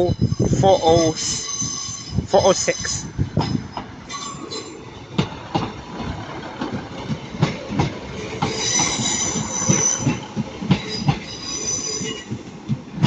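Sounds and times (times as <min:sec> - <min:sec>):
train wheels clicking over rail joints: 0:00.0 - 0:13.0
high-pitched wheel squeal: 0:08.5 - 0:10.2, 0:10.8 - 0:12.3.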